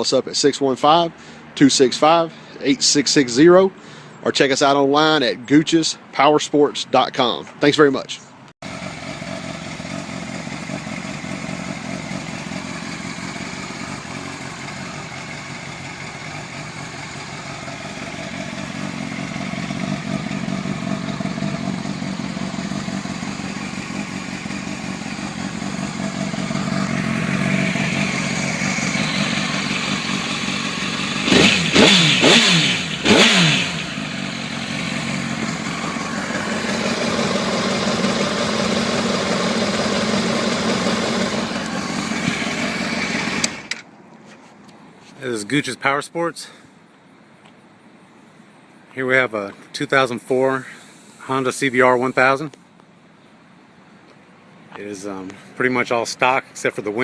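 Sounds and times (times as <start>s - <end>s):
motorcycle engine idling and revving: 8.4s - 44.0s.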